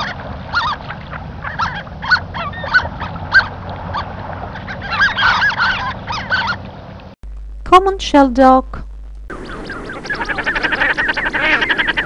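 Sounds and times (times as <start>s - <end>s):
ducks calling: 0.0s - 6.8s, 9.3s - 12.0s.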